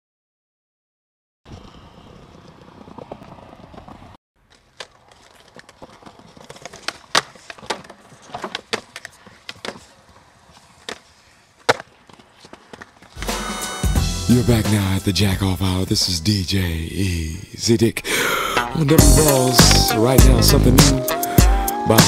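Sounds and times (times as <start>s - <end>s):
skateboard wheels rolling on pavement: 1.5s - 13.4s
skateboard clacks and knocks: 2.3s - 10.2s.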